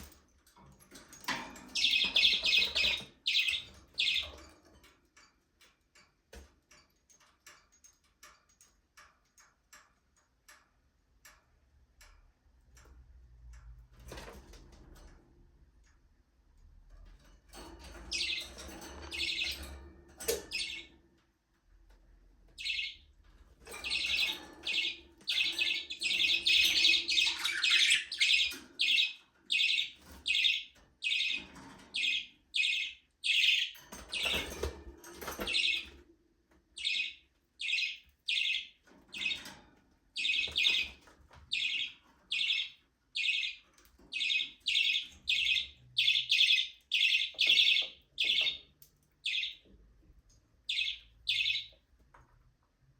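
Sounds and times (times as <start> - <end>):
budgerigars chirping: 1.8 - 4.3, 23.8 - 31.4, 32.0 - 34.5, 36.8 - 39.4, 40.2 - 43.6, 44.2 - 49.6, 50.7 - 51.8.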